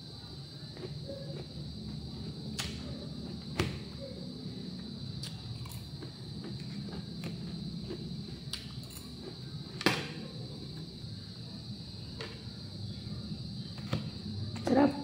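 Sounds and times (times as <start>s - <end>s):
low room rumble: 0.0s - 15.0s
salad being chewed crunchily: 5.1s - 9.8s.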